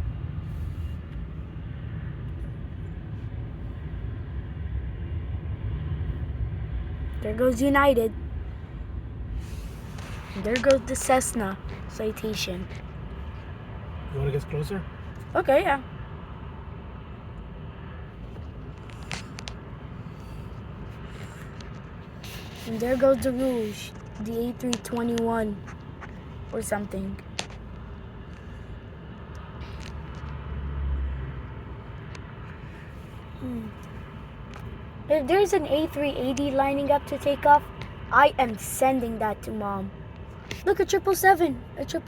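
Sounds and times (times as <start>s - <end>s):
steady low rumble: 0.0s - 42.0s
car cabin rumble: 7.0s - 15.8s.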